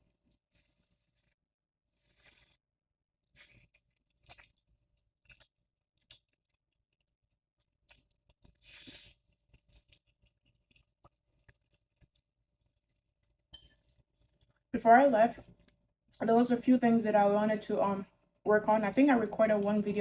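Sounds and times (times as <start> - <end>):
person chewing noodles: 2.0 - 2.6, 3.3 - 7.0, 7.8 - 14.6.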